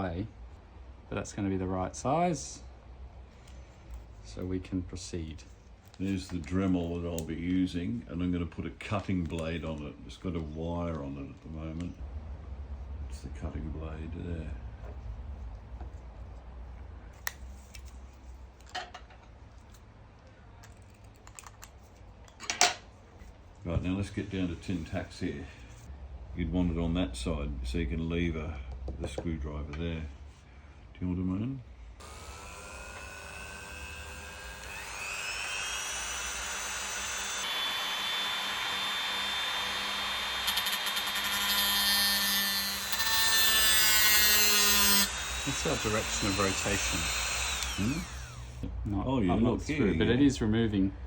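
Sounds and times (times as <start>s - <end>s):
rotary tool whining: 32.0s - 48.6s
cutting disc grinding scrape: 44.6s - 48.5s.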